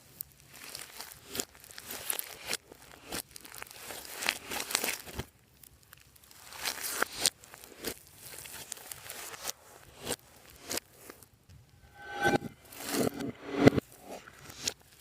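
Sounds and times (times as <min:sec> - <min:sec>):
slime squishing and crackling: 0:00.0 - 0:11.1.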